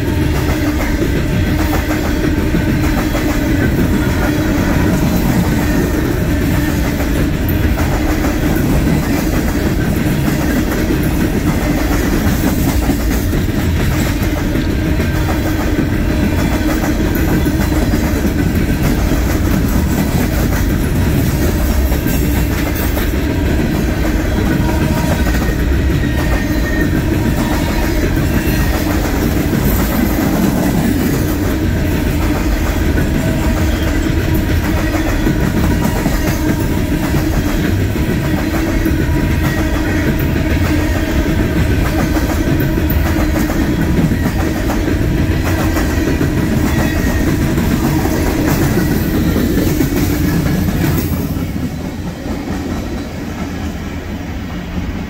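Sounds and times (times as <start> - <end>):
train steel wheels on rails: 0.0 - 55.0.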